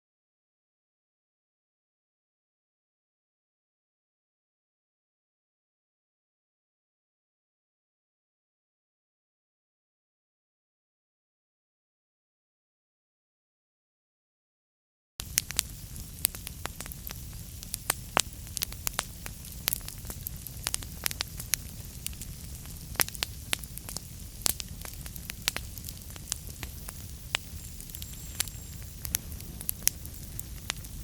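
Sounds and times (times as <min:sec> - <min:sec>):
wood fire crackling: 0:15.2 - 0:31.0.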